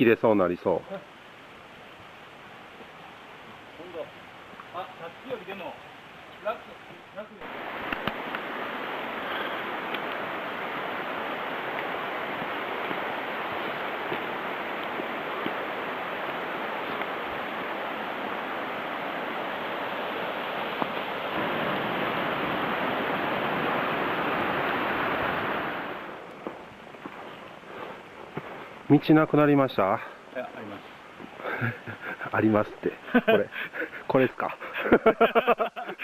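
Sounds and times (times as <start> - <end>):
rush of flowing water: 0.0 - 36.0.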